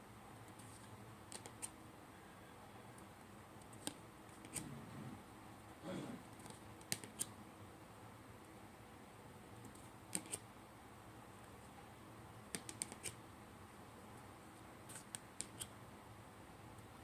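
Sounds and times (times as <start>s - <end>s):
cards clicking: 3.6s - 4.7s, 6.4s - 7.3s, 10.1s - 10.4s, 12.5s - 13.2s, 14.9s - 15.7s.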